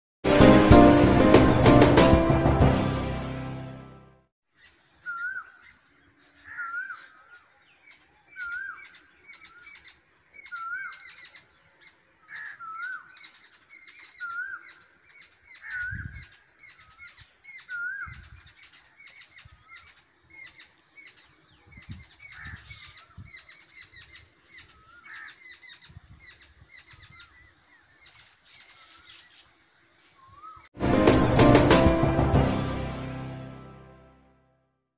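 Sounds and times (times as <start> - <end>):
high bird chirps: 4.5 - 29.6, 30.2 - 30.7
birds singing: 4.5 - 30.8.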